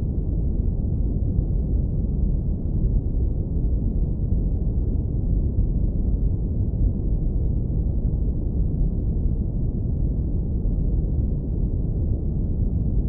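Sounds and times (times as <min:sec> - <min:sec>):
low brown noise rumble: 0:00.0 - 0:13.0.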